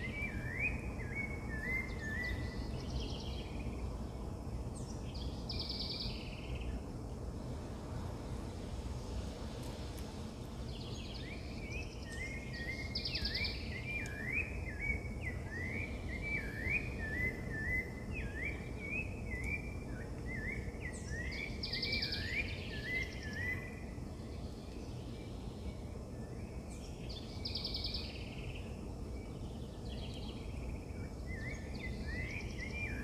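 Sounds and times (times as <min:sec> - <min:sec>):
birds singing whistled notes: 0:00.0 - 0:07.0, 0:10.5 - 0:33.0.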